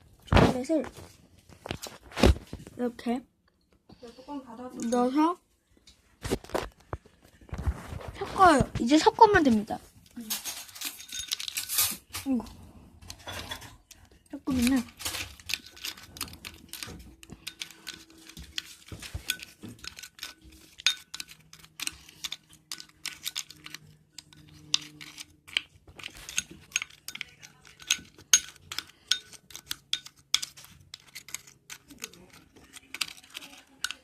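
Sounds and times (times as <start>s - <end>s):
spoon clinking and scraping bowl: 4.8s - 5.2s, 10.2s - 34.0s.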